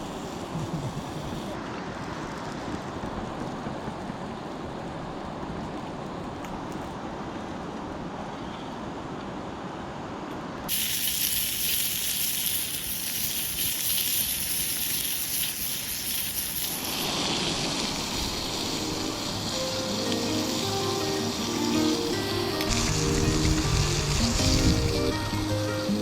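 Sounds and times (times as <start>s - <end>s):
food sizzling in a frying pan: 10.7s - 26.0s
flowing water rushing: 14.3s - 26.0s.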